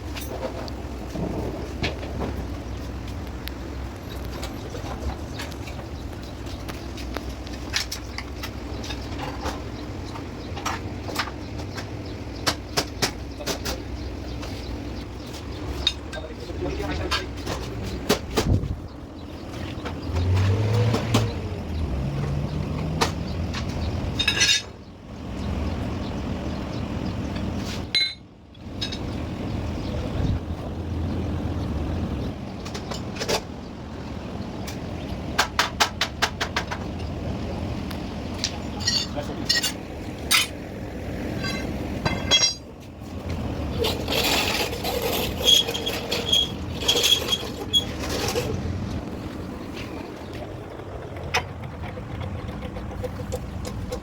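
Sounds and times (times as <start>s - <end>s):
ringing metal clink: 38.8s - 40.5s, 41.4s - 42.7s
sharp metal knocks: 41.4s - 42.8s.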